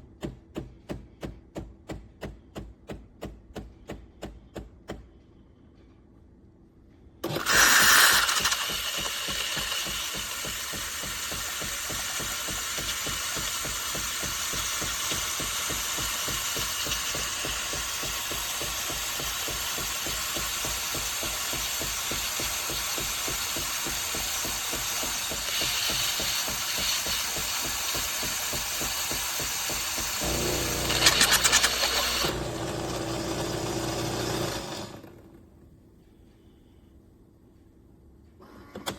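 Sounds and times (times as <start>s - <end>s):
espresso machine pulsing: 7.2s - 35.1s.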